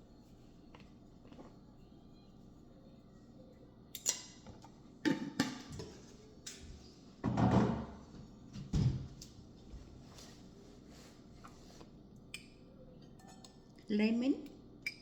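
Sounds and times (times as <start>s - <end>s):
kitchen things knocking and thudding: 7.2s - 8.0s, 8.6s - 9.2s.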